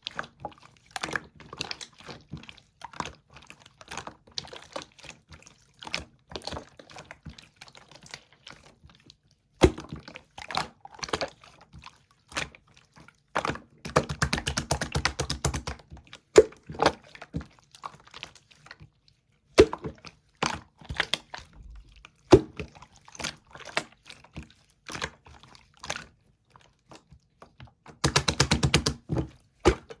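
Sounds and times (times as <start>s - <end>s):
slime crackling pops: 14.0s - 15.8s, 28.0s - 29.0s.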